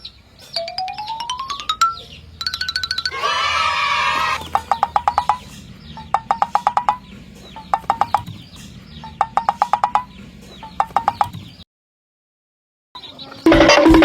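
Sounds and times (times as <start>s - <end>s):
chicken clucking in rapid bursts: 3.0s - 11.6s.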